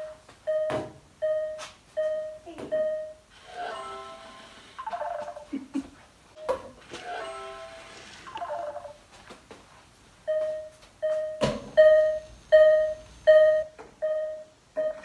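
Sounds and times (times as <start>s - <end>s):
electronic jingle: 3.5s - 5.4s, 7.0s - 9.0s
single-pitch electronic beeps: 10.3s - 15.0s.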